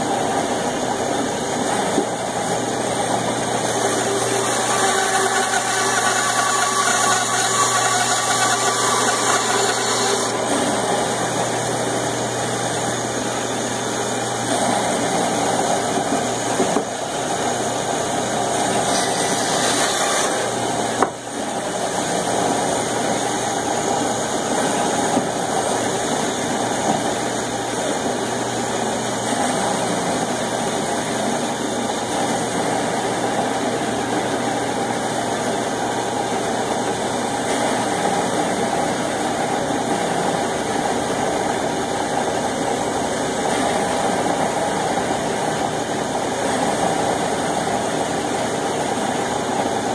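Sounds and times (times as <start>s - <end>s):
band saw humming: 1.7s - 27.8s
saw blade cutting wood: 3.6s - 11.8s, 18.6s - 21.2s.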